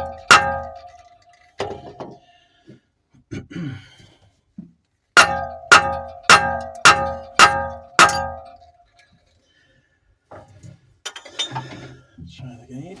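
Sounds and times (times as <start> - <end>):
metal striking metal ringing: 0.0 - 1.1, 5.2 - 8.7.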